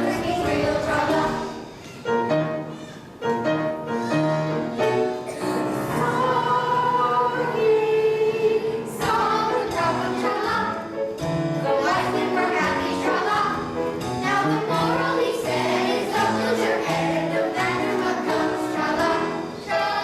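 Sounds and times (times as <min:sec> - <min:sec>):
choir singing with accompaniment: 0:04.6 - 0:20.0.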